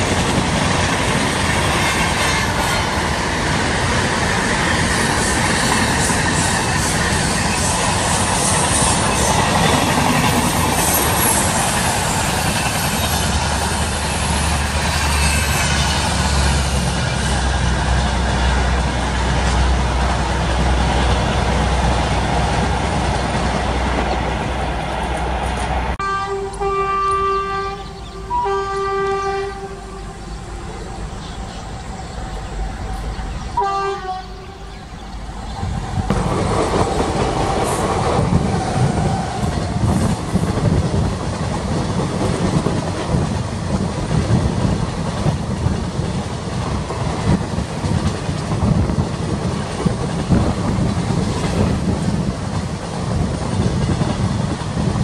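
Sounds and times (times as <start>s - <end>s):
train coaches rumbling: 0.0s - 55.0s
train horn blast: 1.8s - 3.0s, 26.0s - 31.6s, 32.2s - 34.8s.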